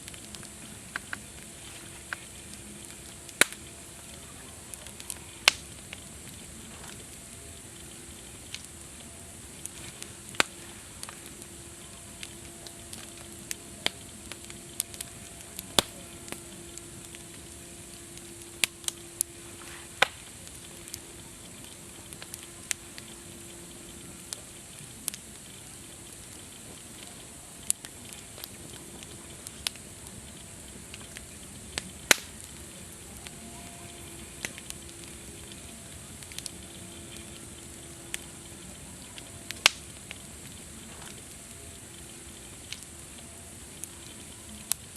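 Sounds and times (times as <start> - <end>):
campfire crackling and popping: 0.0 - 44.9
faint low hum: 0.0 - 44.9.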